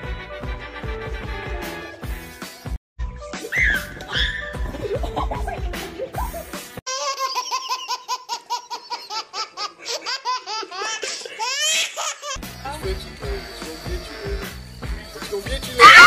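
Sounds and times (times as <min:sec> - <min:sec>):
music with thumps: 0:03.0 - 0:06.8
baby laughing and squealing: 0:03.4 - 0:05.4, 0:06.2 - 0:12.4, 0:15.8 - 0:16.0.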